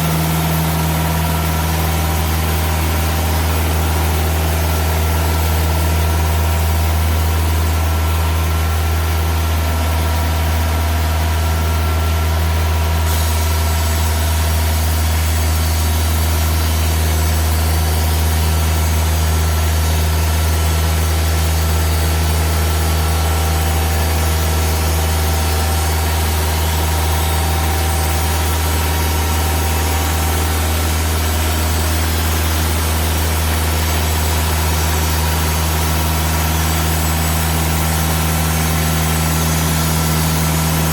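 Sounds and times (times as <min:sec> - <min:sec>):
sawmill engine drone: 0:00.0 - 0:40.9
saw blade hiss: 0:13.1 - 0:15.8.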